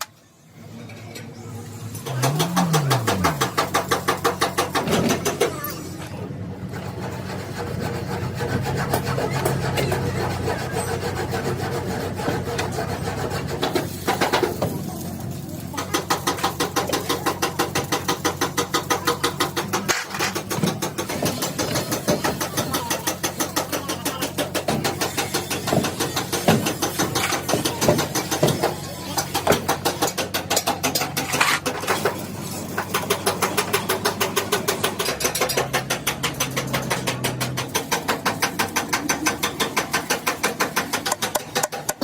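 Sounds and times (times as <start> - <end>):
sharp metal knocks: 2.0 - 5.6, 15.8 - 42.0.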